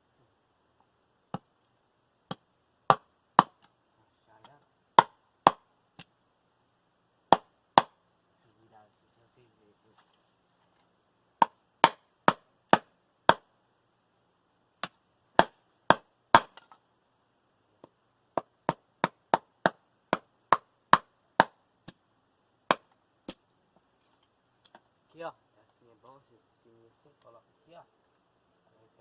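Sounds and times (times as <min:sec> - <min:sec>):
machete chopping firewood: 0:02.3 - 0:03.8, 0:04.4 - 0:06.1, 0:07.3 - 0:08.0, 0:11.4 - 0:13.5, 0:14.8 - 0:16.8, 0:17.8 - 0:22.0, 0:22.7 - 0:23.4.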